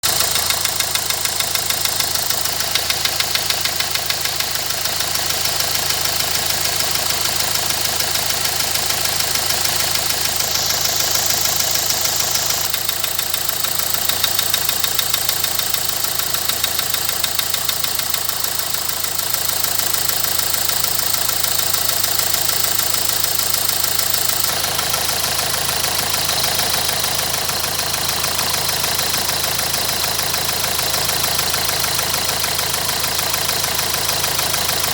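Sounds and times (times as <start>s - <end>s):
diesel engine idling with knock: 0.0s - 34.9s.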